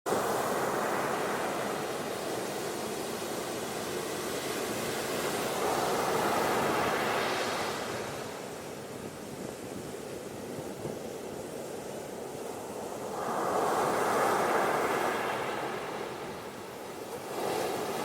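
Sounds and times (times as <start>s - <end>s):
ocean surf washing onto beach: 0.1s - 18.0s.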